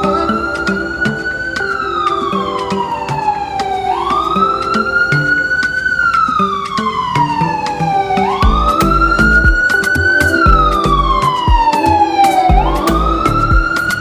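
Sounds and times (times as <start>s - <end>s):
music with steady beat: 0.0s - 14.0s
siren wailing: 0.0s - 14.0s
heavy bass beat: 8.4s - 13.7s.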